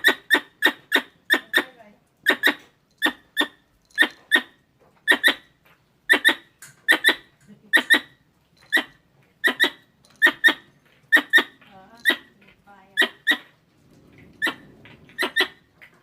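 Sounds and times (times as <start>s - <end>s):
squirrel chirping: 0.0s - 13.5s, 14.4s - 15.9s.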